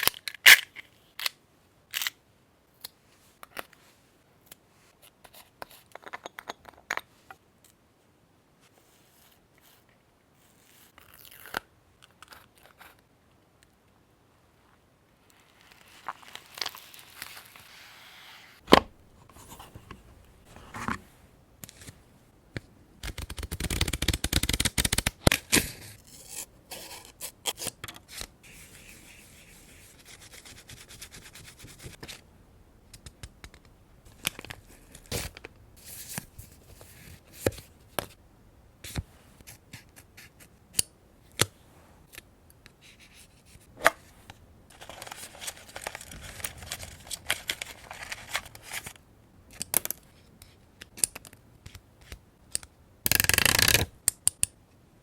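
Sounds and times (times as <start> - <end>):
paper rustling and tearing: 44.7 - 49.0.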